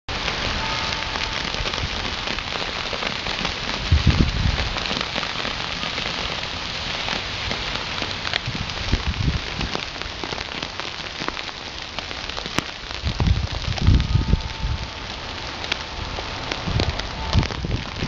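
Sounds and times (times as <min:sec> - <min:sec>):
freezing rain pattering on ice: 0:00.1 - 0:18.0.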